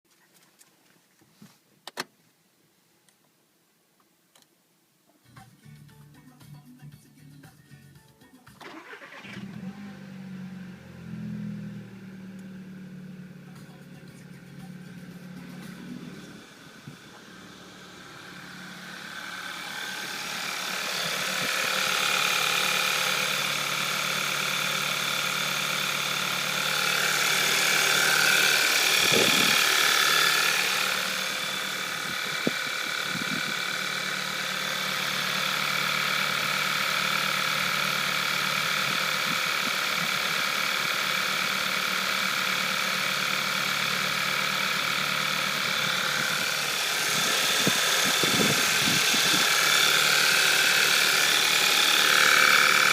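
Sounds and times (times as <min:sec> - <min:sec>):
car engine idling: 0:08.6 - 0:52.9
engine ticking rattle: 0:11.4 - 0:52.9.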